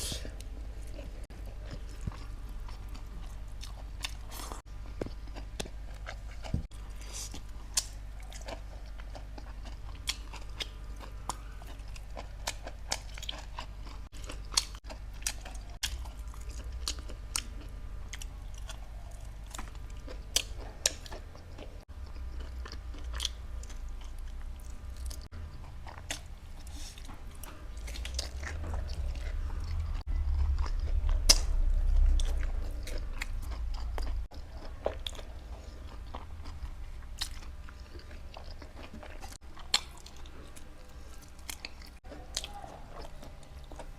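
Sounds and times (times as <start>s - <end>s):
chewing meat: 0.0s - 43.9s
low rumble: 27.4s - 34.2s.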